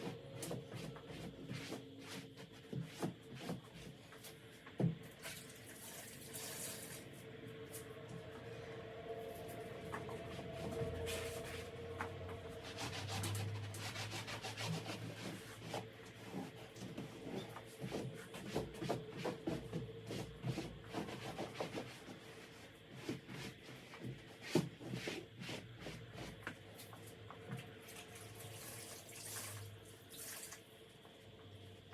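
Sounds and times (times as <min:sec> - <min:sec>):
cloth scrubbing a surface: 0:12.6 - 0:26.3.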